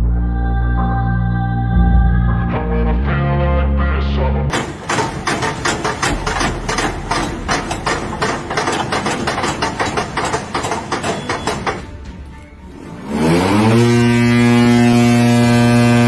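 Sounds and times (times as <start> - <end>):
music: 0.0 - 4.5, 10.9 - 15.6
machinery hammering rapidly: 4.5 - 16.0.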